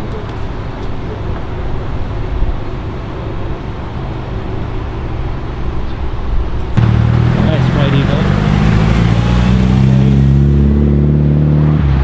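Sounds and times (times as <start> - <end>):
low outdoor rumble: 6.8 - 10.9.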